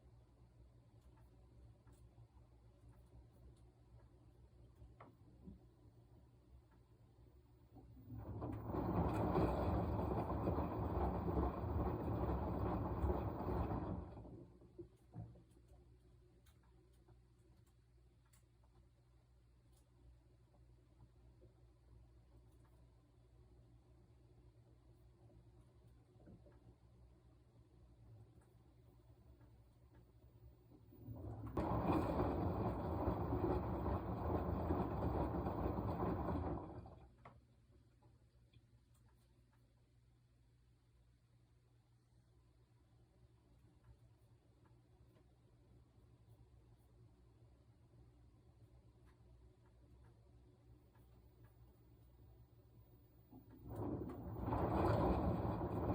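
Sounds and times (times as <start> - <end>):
washing machine drum tumbling: 7.8 - 14.8, 30.8 - 37.2, 53.2 - 55.9.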